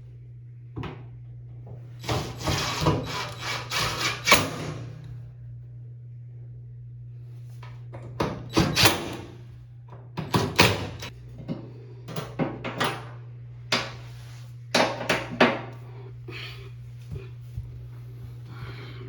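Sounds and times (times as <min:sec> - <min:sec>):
steady low hum: 0:00.0 - 0:19.0
knocks and thuds on washing machine: 0:08.0 - 0:09.3, 0:10.1 - 0:13.1, 0:14.7 - 0:15.7.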